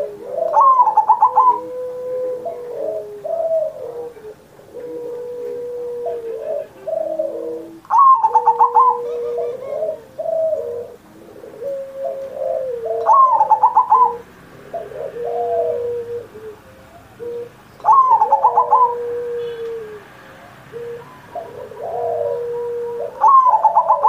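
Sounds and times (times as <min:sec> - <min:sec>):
dove cooing song: 0:00.0 - 0:24.0.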